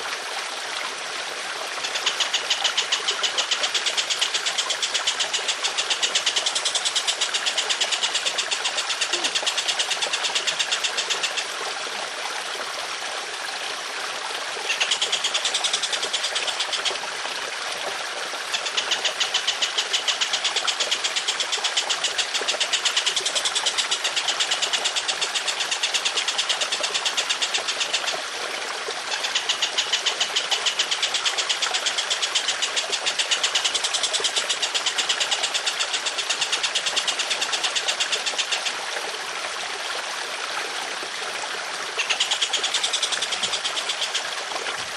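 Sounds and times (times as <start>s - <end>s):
trickling water: 0.0s - 44.9s
songbird harsh repeated call: 4.6s - 11.2s, 42.0s - 44.3s.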